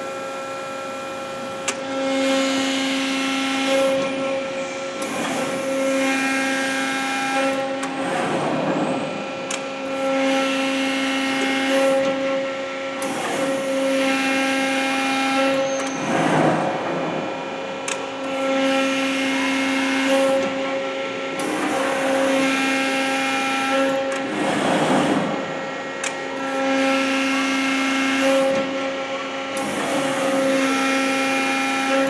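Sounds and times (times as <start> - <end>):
machine hum: 12.3 - 31.8
low machine whine: 15.6 - 18.4
hydraulic rushing: 15.8 - 18.0, 24.2 - 25.6.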